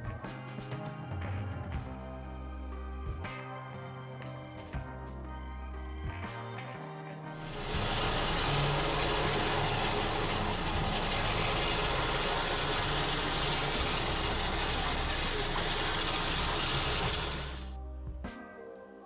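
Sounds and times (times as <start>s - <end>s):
engine running: 7.4s - 17.8s.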